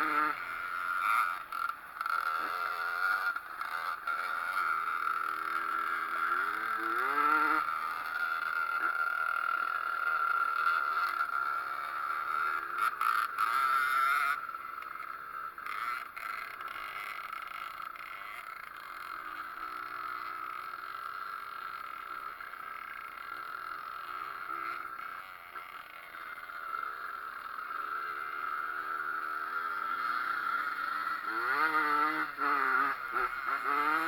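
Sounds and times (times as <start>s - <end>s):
two-stroke engine at high revs: 0.0s - 34.0s.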